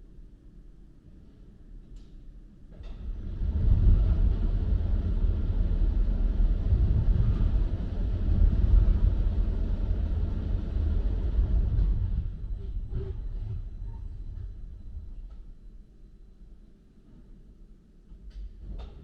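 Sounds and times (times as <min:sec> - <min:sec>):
low mechanical rumble of conveyor: 0:00.0 - 0:19.0.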